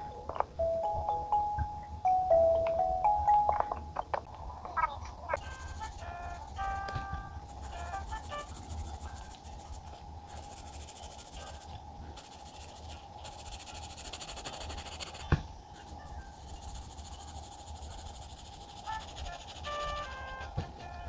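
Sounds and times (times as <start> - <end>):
pen scratching on paper: 5.4 - 6.9, 7.5 - 20.6.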